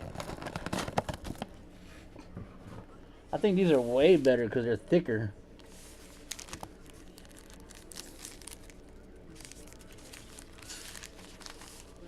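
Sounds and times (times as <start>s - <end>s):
wrappers crinkling: 0.0s - 1.5s, 5.6s - 12.0s.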